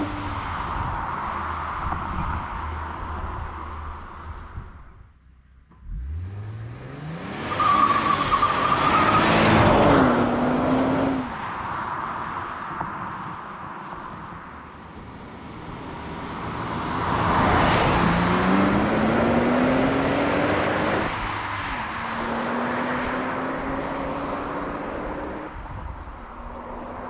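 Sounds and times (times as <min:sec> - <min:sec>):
road and wind noise: 0:00.0 - 0:27.0
car engine accelerating: 0:05.6 - 0:11.4, 0:14.6 - 0:27.0.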